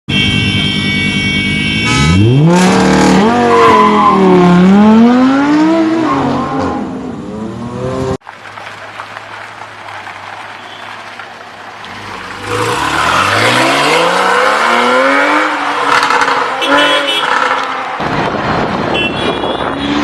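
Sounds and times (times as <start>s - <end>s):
traffic noise: 0.1s - 20.0s
sports car engine revving: 11.9s - 17.8s.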